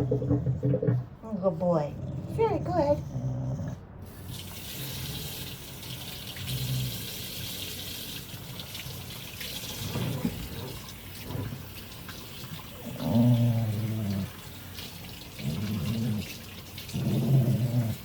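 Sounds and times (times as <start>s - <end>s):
dog growling: 0.0s - 3.9s, 12.8s - 14.4s, 15.4s - 18.0s
water running: 4.1s - 18.0s.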